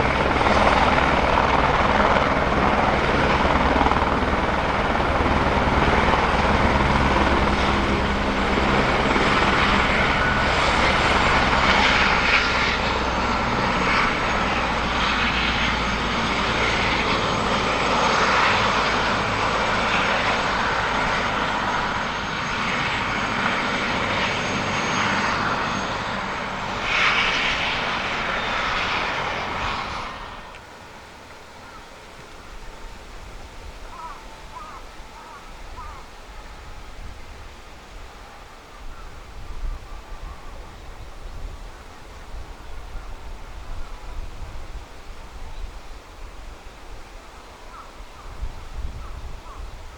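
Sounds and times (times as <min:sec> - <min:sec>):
helicopter rotor beat: 0:00.0 - 0:36.8
high turbine whine: 0:00.0 - 0:49.9.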